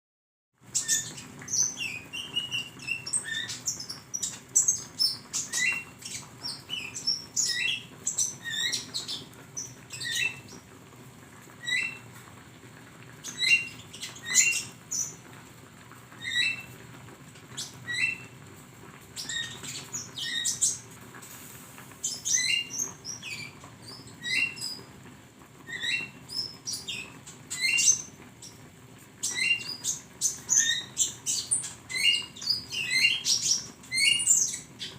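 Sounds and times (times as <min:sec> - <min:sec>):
sunbird high chirps and twitters: 0:00.7 - 0:10.6, 0:11.6 - 0:12.1, 0:13.2 - 0:15.2, 0:16.2 - 0:16.8, 0:17.5 - 0:18.4, 0:19.2 - 0:20.9, 0:22.0 - 0:24.9, 0:25.6 - 0:28.6, 0:29.2 - 0:34.9.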